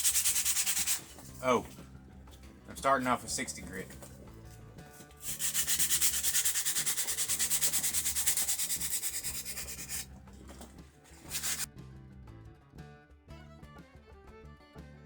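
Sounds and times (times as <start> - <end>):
sandpaper scratching on wood: 0.0 - 1.7, 5.1 - 10.1, 11.1 - 11.7.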